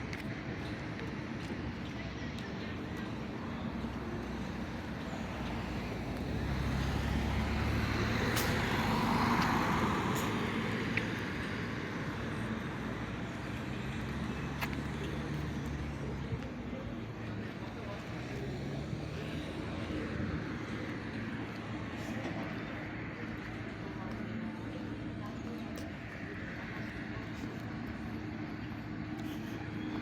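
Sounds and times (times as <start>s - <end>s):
steady traffic noise: 0.0s - 30.0s
vehicle passing by: 5.6s - 11.0s.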